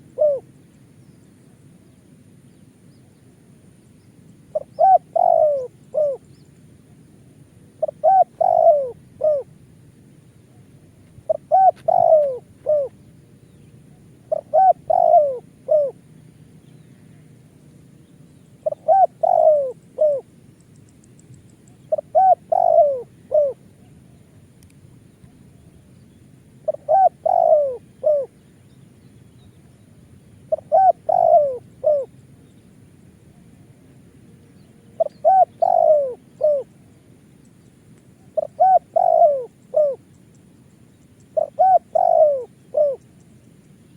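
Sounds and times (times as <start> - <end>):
dove cooing: 0.0 - 0.6, 4.5 - 6.3, 7.8 - 9.6, 10.5 - 16.1, 18.6 - 20.3, 21.7 - 24.4, 26.5 - 28.4, 30.4 - 32.2, 34.9 - 36.8, 38.2 - 40.2, 41.2 - 43.3.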